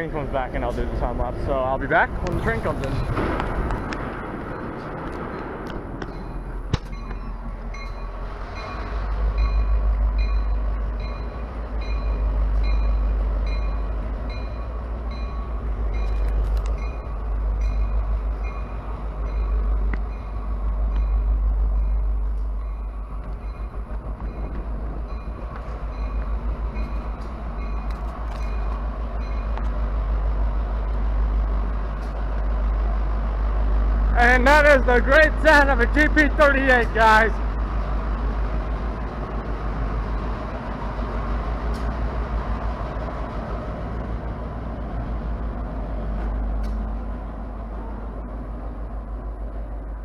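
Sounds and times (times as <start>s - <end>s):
locomotive bell ringing: 0.0s - 3.4s, 4.4s - 30.2s, 34.2s - 38.2s, 40.0s - 40.7s
diesel locomotive engine rumble: 0.0s - 50.0s.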